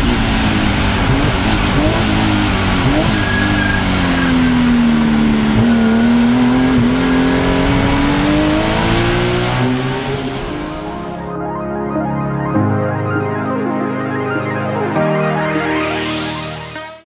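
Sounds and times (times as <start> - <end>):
car engine accelerating: 0.0 - 11.3.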